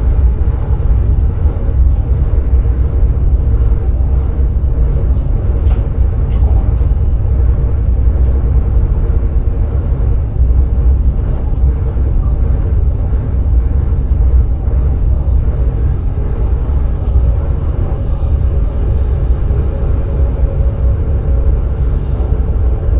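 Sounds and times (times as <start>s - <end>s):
train cab rumble: 0.0s - 22.9s.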